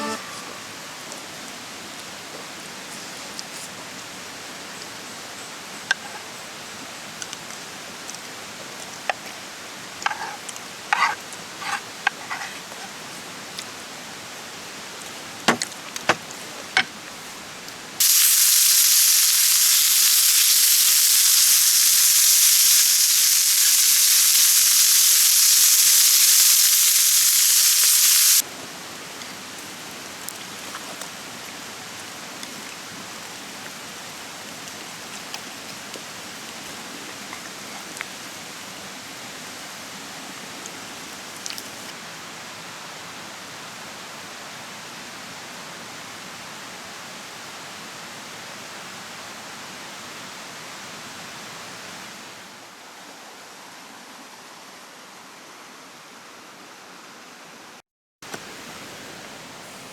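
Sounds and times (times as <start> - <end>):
campfire crackling: 18.0 - 28.4
meat sizzling loud hiss: 18.0 - 28.4.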